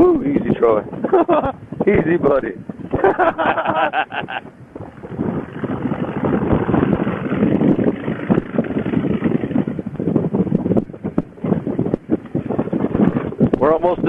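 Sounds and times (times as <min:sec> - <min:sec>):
wind rushing over microphone: 0:00.0 - 0:14.0
motorcycle engine running: 0:04.7 - 0:13.6.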